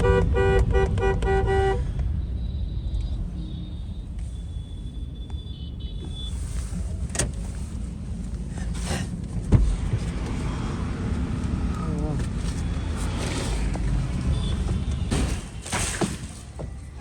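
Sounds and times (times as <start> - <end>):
motor vehicle rumble: 0.0 - 17.0.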